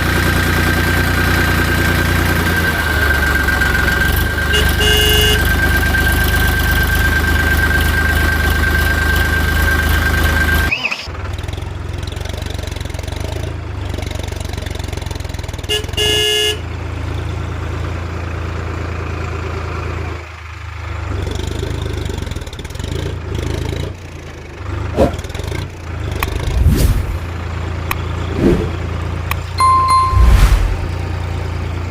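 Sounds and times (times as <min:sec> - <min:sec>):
toy horn tooting: 0:04.4 - 0:05.6, 0:15.7 - 0:16.6.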